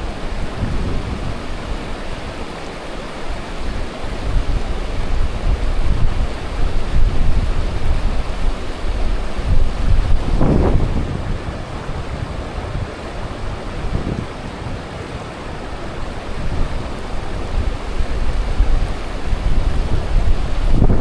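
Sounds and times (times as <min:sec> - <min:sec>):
wind buffeting microphone: 0:05.9 - 0:21.0.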